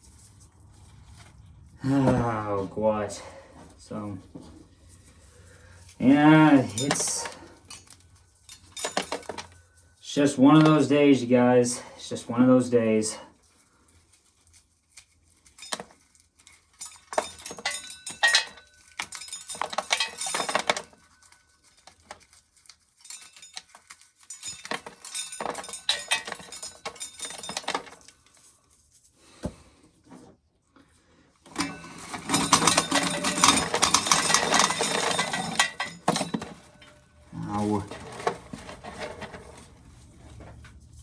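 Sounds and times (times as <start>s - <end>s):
corn kernels rattling: 5.0s - 29.0s, 31.5s - 40.2s.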